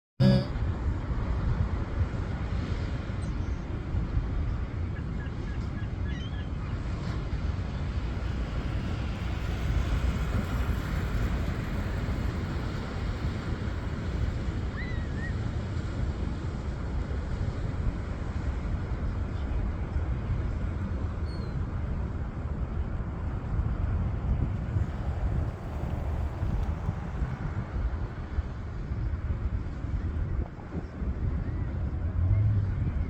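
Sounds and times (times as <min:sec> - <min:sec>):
wind buffeting microphone: 0:06.8 - 0:33.0.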